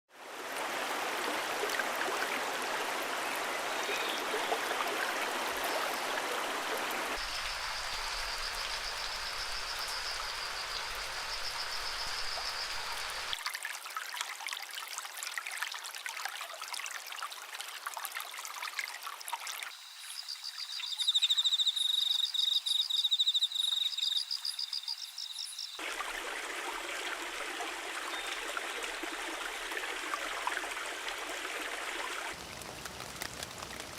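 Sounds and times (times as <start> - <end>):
steady rush like running water: 0.1 - 20.9, 24.4 - 33.9
songbirds singing high trills: 20.0 - 25.8.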